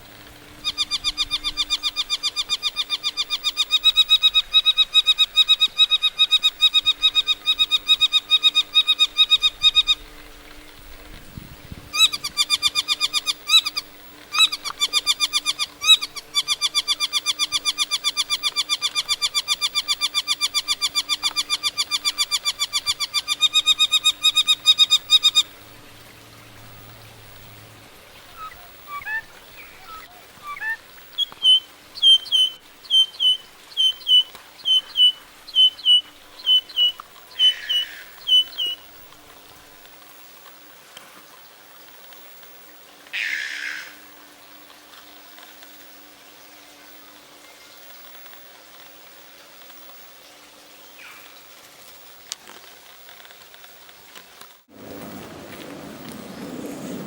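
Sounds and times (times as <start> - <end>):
short sharp high bird calls: 28.4 - 38.8.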